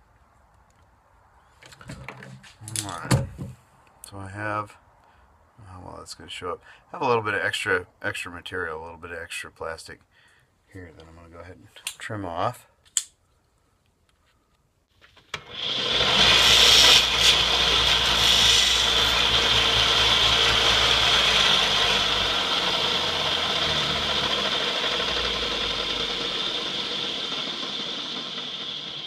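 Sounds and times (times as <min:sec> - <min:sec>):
power tool grinding plastic: 0:15.2 - 0:29.0.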